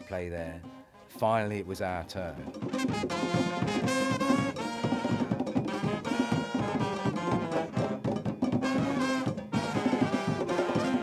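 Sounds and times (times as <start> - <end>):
driving drums and percussion: 1.9 - 11.0
brass section melody: 2.5 - 11.0.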